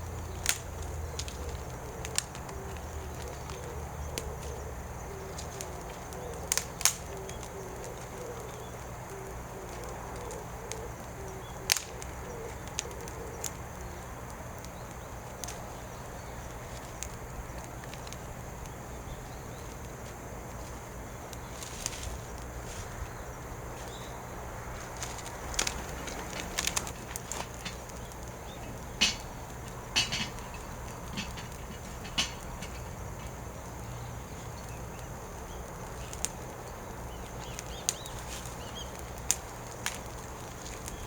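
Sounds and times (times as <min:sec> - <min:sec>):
dove cooing: 0:00.0 - 0:16.8, 0:24.8 - 0:39.3
wood fire crackling and popping: 0:00.0 - 0:41.0.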